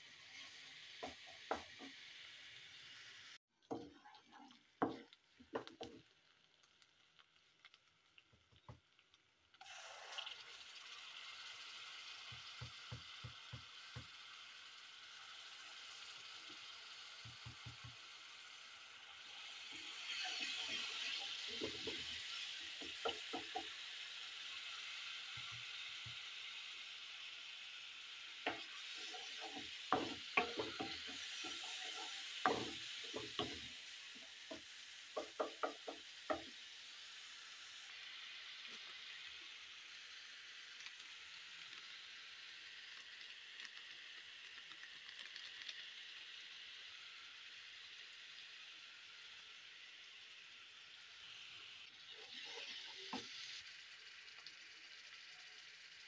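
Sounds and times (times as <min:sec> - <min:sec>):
food sizzling in a pan: 0:00.0 - 0:56.0
utensil knocking and scraping pan: 0:28.5 - 0:33.7.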